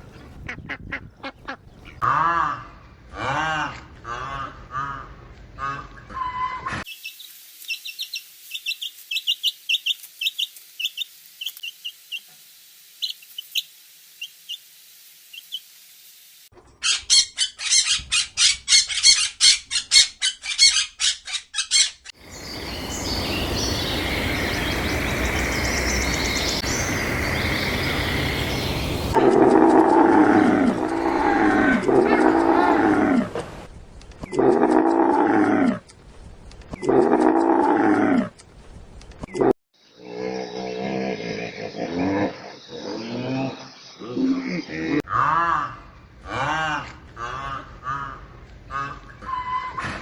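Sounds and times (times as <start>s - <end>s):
birds chirping: 0.0s - 2.0s, 16.8s - 34.5s
rapid loud chattering bird calls: 16.8s - 33.1s
steady noisy background: 22.2s - 30.0s.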